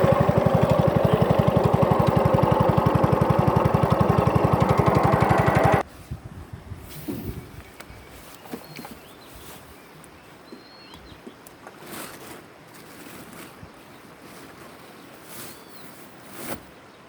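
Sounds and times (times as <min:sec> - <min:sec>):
small boat engine running: 0:00.0 - 0:05.8.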